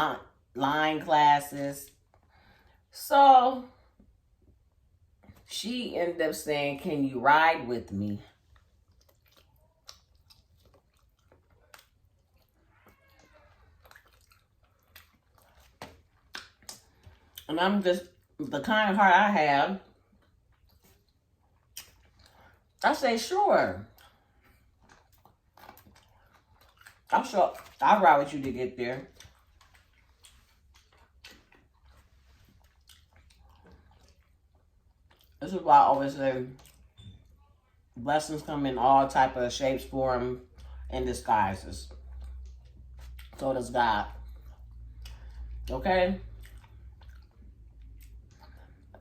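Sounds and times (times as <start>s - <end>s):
person chewing: 8.3s - 17.5s, 19.9s - 22.8s, 23.8s - 27.8s, 28.9s - 35.4s, 36.5s - 37.4s, 41.9s - 43.4s, 44.1s - 49.0s
wet mouth clicks and smacks: 8.5s - 12.5s, 13.8s - 17.5s, 20.2s - 22.4s.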